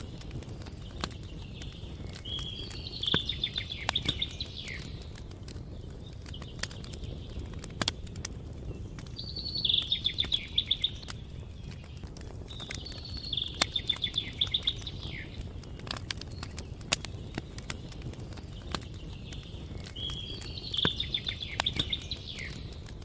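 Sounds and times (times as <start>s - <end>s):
campfire crackling: 0.0s - 23.0s
songbird trilling: 2.2s - 5.0s, 9.2s - 11.2s, 12.7s - 15.5s, 19.9s - 22.7s.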